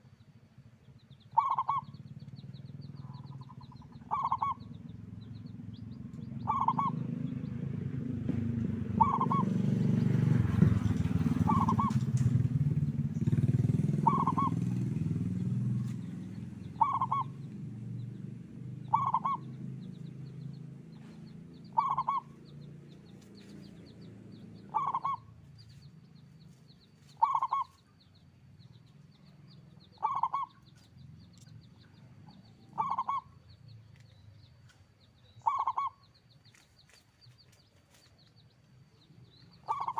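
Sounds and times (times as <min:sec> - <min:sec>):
dove cooing: 0:01.3 - 0:05.2, 0:06.2 - 0:07.2, 0:08.8 - 0:10.0, 0:10.6 - 0:18.0, 0:18.8 - 0:19.9, 0:21.0 - 0:22.4, 0:24.6 - 0:25.4, 0:27.1 - 0:27.8, 0:29.9 - 0:30.6, 0:32.6 - 0:33.4, 0:35.4 - 0:36.0, 0:39.6 - 0:39.9.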